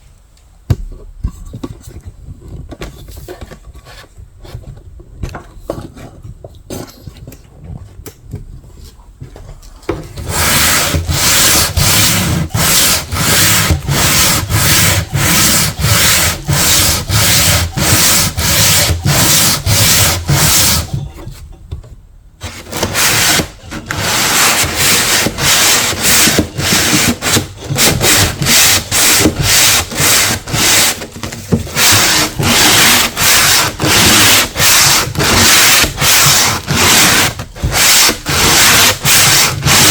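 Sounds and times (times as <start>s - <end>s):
hand sanding wood: 10.2s - 21.1s, 22.4s - 39.9s.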